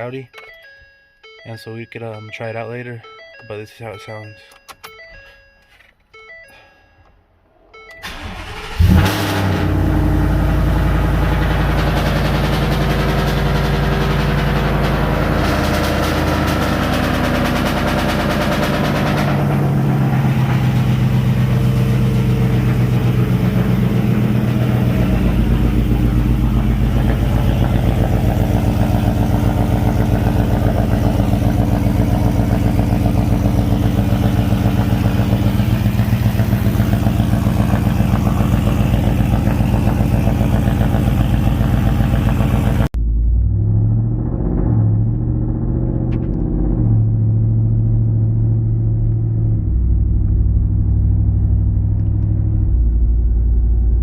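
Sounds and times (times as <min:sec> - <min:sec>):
engine idling with loud rumble: 0:08.0 - 0:43.0.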